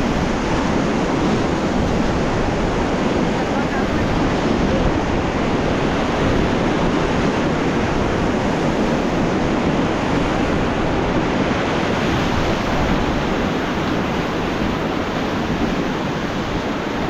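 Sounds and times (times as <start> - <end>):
river rushing over rapids: 0.0 - 17.0.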